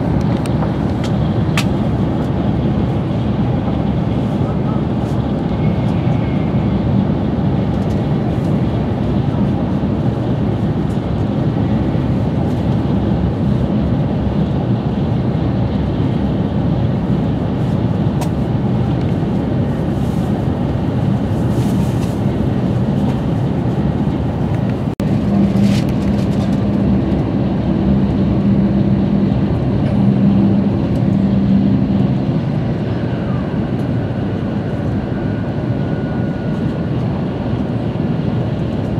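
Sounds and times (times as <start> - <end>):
train wheels rumbling: 0.0 - 38.9
rushing air: 6.4 - 35.9.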